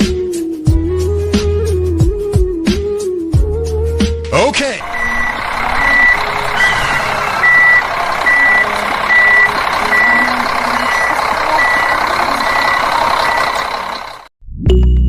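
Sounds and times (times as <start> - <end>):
reversing alarm beeping: 4.8 - 14.3.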